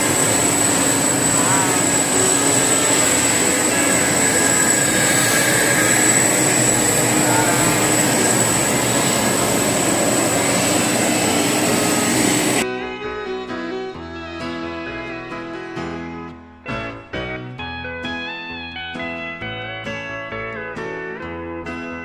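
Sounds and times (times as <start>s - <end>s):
jet engine whine and rush: 0.0s - 12.6s
guitar music: 0.0s - 22.0s.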